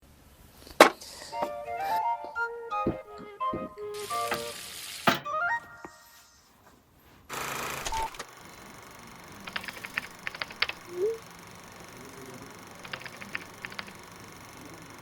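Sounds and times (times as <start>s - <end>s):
keyboard typing: 7.7s - 15.0s.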